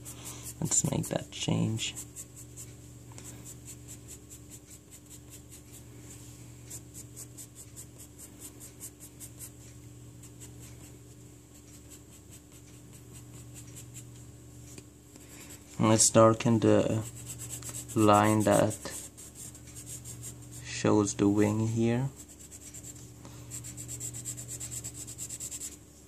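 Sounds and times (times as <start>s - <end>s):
pencil sketching on paper: 0.0s - 2.7s, 3.4s - 9.6s, 10.2s - 14.2s, 16.8s - 20.8s, 22.1s - 25.8s
faint hum: 0.0s - 26.0s.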